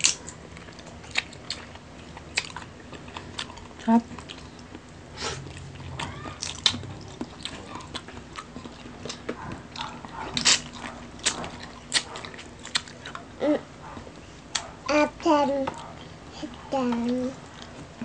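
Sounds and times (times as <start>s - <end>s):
person biting and chewing food: 0.0s - 13.2s.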